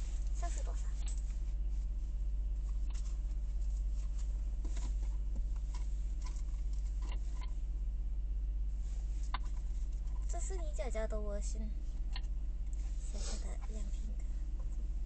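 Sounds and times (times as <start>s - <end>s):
rustling: 0.0s - 7.6s
low mechanical hum: 0.0s - 15.0s.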